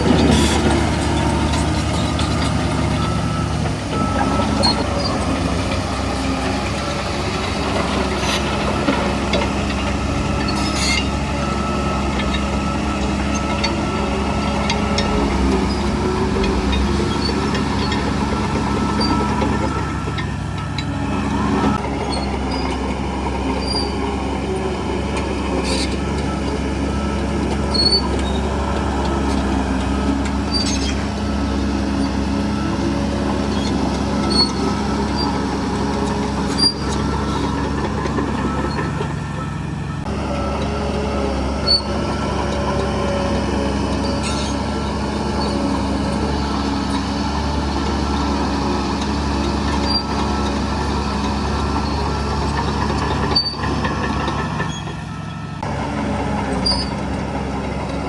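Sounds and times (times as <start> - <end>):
bulldozer diesel engine running: 0.0 - 58.0
short high squeaks and clicks: 10.4 - 19.6, 27.7 - 28.4, 30.5 - 31.0, 36.4 - 37.7, 49.4 - 50.6, 51.3 - 55.5, 56.6 - 57.0.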